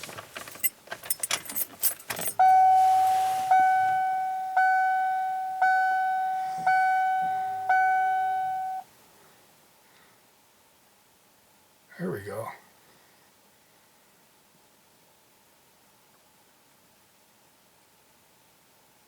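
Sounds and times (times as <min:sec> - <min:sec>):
keys jangling: 0:00.4 - 0:02.4
car warning chime dinging: 0:02.2 - 0:08.9.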